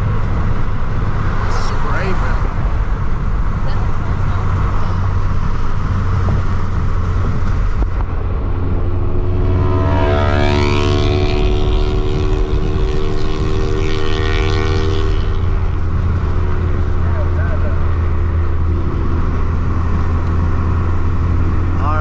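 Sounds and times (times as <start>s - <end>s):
car engine and road noise: 0.0s - 22.0s
pitched engine note: 8.4s - 17.8s.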